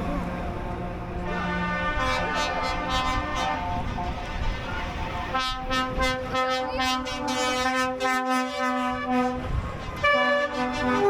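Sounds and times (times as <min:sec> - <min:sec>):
vehicle air horn blasts: 0:01.2 - 0:04.2, 0:05.3 - 0:11.0.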